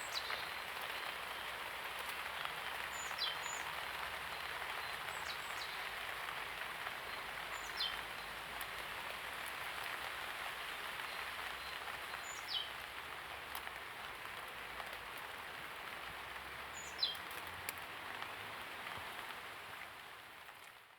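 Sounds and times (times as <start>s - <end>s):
light rain falling: 0.0s - 20.9s.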